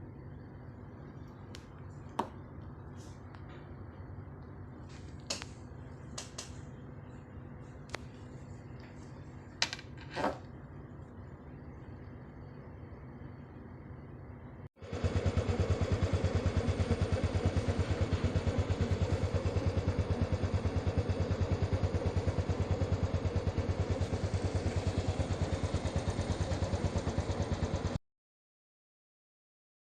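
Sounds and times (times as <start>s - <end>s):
small engine running: 14.8s - 28.0s.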